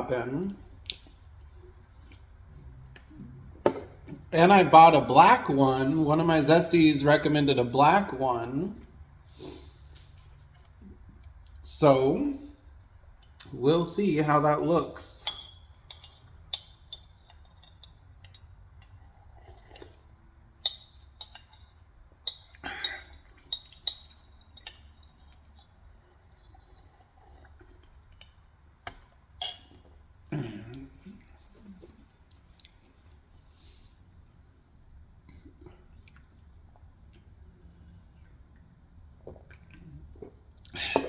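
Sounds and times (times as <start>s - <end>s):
soft eating sounds: 0.0s - 4.3s, 8.7s - 11.7s, 15.6s - 41.0s
spoon clinking against bowl: 15.2s - 18.9s.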